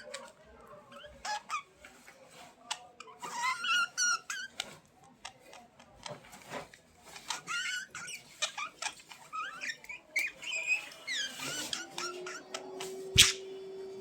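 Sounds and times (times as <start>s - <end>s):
budgerigars chirping: 10.4s - 13.5s.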